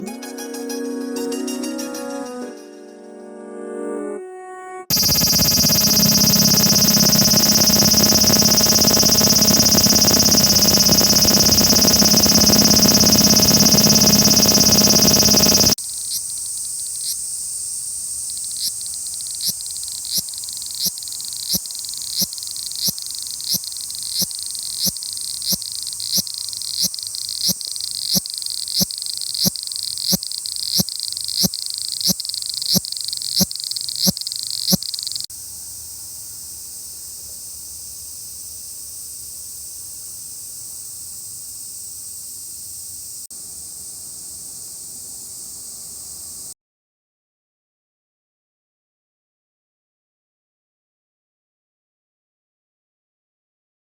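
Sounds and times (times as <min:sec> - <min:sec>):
high hiss with sharp ticks: 0:04.9 - 0:35.3
cicada buzzing drone: 0:04.9 - 0:46.5.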